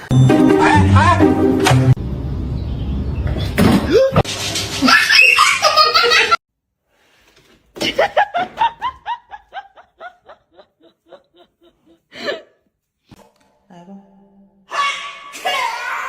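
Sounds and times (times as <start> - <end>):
person laughing: 4.8 - 6.4, 7.8 - 12.3.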